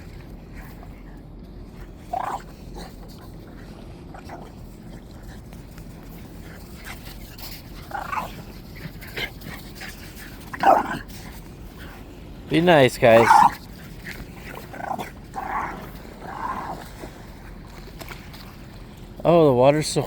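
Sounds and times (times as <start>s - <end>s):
steady background noise: 0.0s - 20.0s
dogs whining and yipping: 7.2s - 9.6s.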